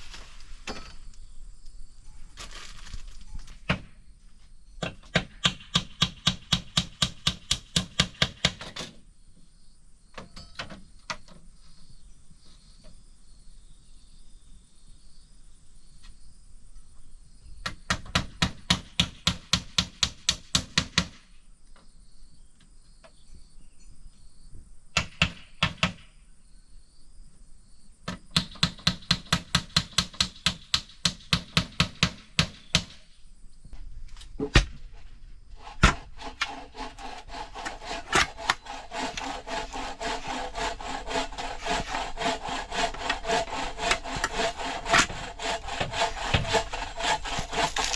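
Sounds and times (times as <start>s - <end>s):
wood being sawn: 35.6s - 47.9s.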